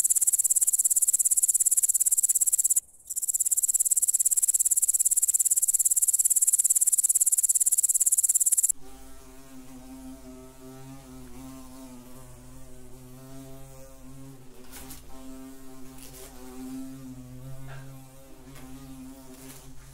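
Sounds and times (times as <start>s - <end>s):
grasshopper stridulating: 0.0s - 8.7s
wasp wingbeat buzz: 0.0s - 19.9s.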